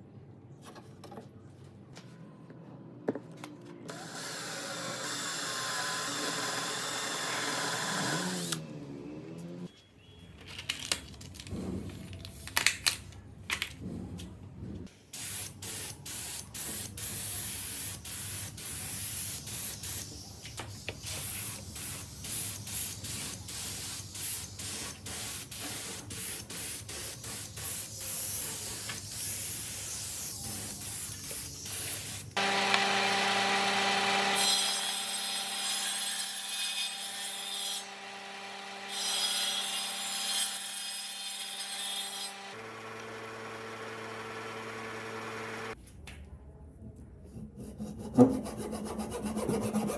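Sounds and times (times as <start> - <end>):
small power tool motor hissing: 3.9 - 8.6, 29.1 - 37.0
rubbing strokes on workpiece: 47.4 - 49.9.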